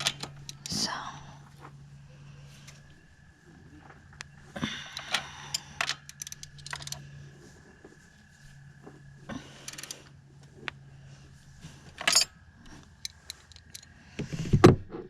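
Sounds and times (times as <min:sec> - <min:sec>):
socket ratchet clicking: 0:00.0 - 0:00.8, 0:05.0 - 0:07.0, 0:09.7 - 0:10.0, 0:13.0 - 0:13.9
metal tools clinking: 0:00.0 - 0:00.9, 0:05.0 - 0:07.1, 0:09.6 - 0:10.1, 0:11.8 - 0:12.4, 0:13.0 - 0:13.9.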